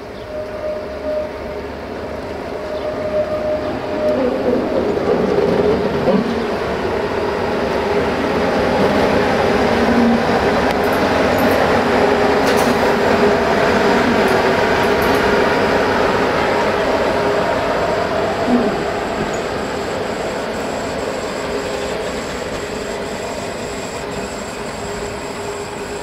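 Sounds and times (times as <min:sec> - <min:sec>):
train rumbling on tracks: 0:00.0 - 0:26.0
metallic clicks of wheels on rails: 0:10.6 - 0:13.2, 0:13.8 - 0:15.5.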